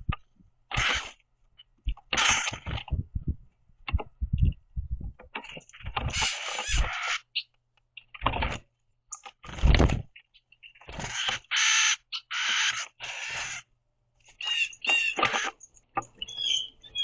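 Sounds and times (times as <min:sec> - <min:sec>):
birds harsh rasping calls: 0:05.8 - 0:07.6, 0:10.3 - 0:13.7, 0:14.3 - 0:17.0
wing flutters and landings: 0:08.2 - 0:10.1, 0:10.7 - 0:13.7.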